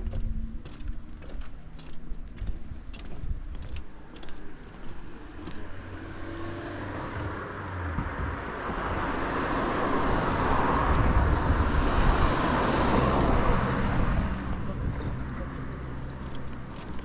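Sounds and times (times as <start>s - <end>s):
car passing by: 4.4s - 17.0s.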